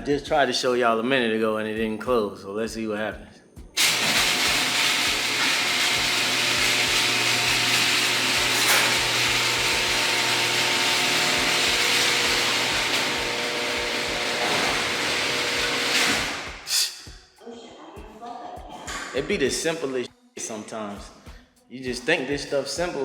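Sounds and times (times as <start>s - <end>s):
garage door opener hum: 3.8s - 16.7s.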